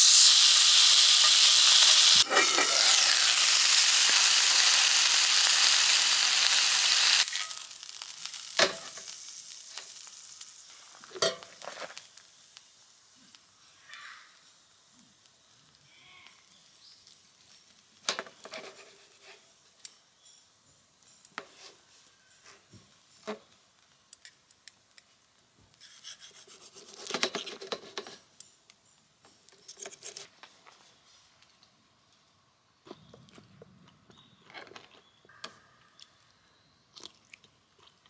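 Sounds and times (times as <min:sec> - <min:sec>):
cooking gear scraping and rubbing: 0:00.0 - 0:07.7, 0:18.4 - 0:19.5.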